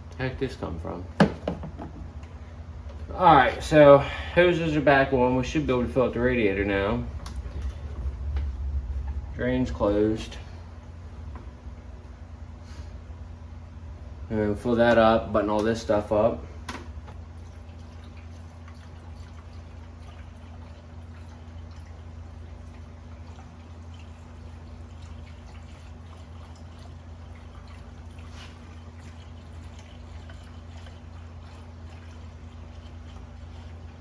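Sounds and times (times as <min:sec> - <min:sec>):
steady low hum: 0:00.0 - 0:34.0
liquid trickling and splashing: 0:14.7 - 0:34.0
small drips: 0:14.8 - 0:34.0.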